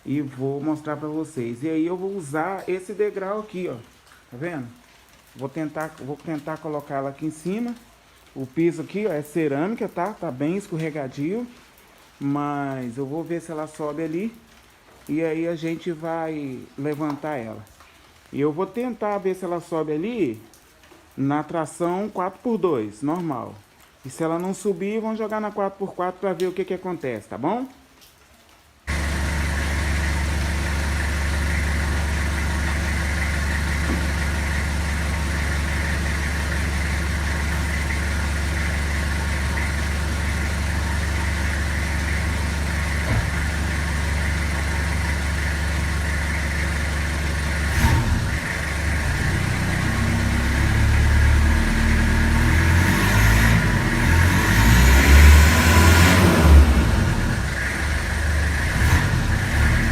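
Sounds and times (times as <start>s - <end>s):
pickup engine idling and revving: 28.9s - 59.9s.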